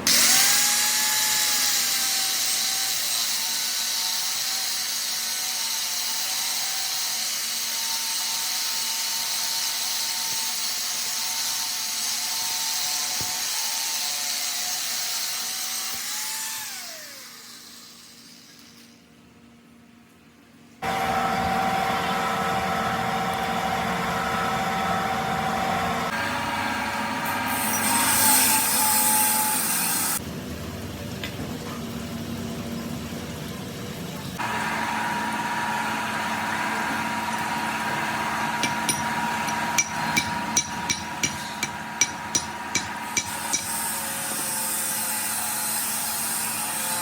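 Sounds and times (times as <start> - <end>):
workshop machine humming and whining: 20.8 - 47.0
sharp metallic taps: 38.6 - 43.7.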